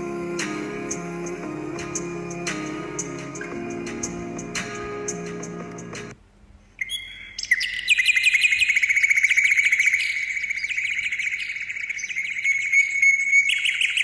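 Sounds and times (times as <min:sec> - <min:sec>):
bird trilling high chirps: 0:06.8 - 0:14.0.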